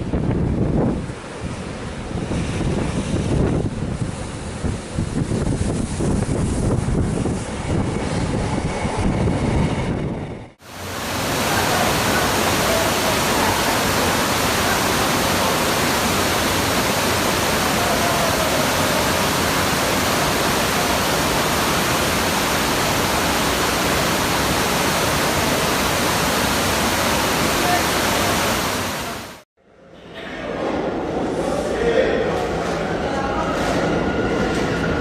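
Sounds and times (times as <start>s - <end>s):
wind buffeting microphone: 0.0s - 10.6s
surf rumbling: 0.0s - 29.4s
steady rushing hiss: 10.6s - 29.4s.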